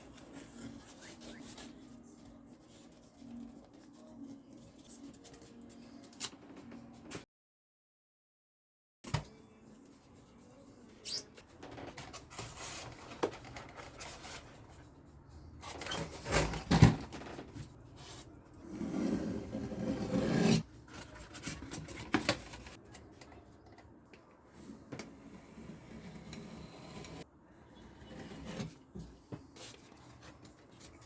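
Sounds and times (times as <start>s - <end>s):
hand rubbing and scraping object: 24.7s - 27.3s.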